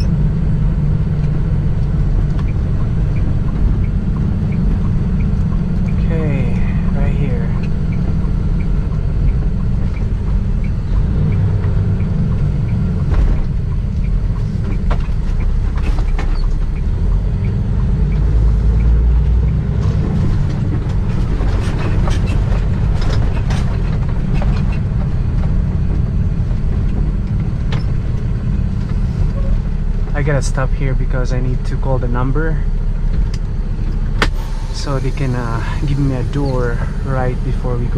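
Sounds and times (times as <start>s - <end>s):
truck engine and road rumble: 0.0s - 37.9s.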